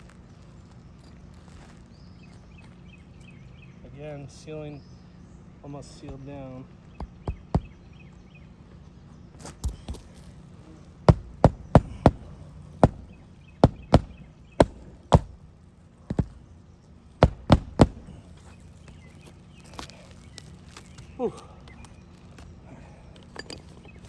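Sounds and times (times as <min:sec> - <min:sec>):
hammer driving roofing nails: 0:06.1 - 0:08.3, 0:09.4 - 0:19.9.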